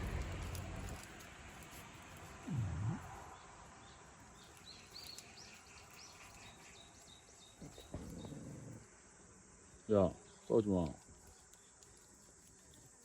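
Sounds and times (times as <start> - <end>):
animals scuffling: 0.0 - 8.8
small bird chirping: 2.4 - 8.8.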